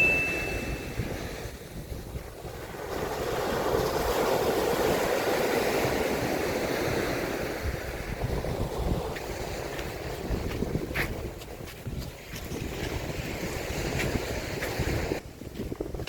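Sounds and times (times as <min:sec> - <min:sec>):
sea surf: 0:00.0 - 0:11.2
wind on microphone: 0:00.0 - 0:16.0.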